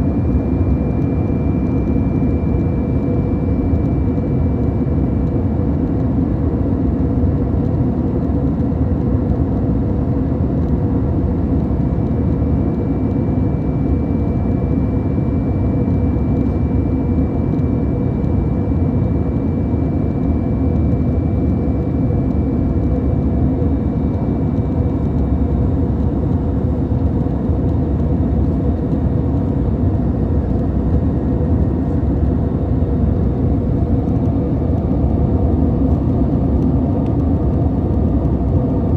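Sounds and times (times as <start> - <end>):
airplane cabin drone: 0.0 - 38.9.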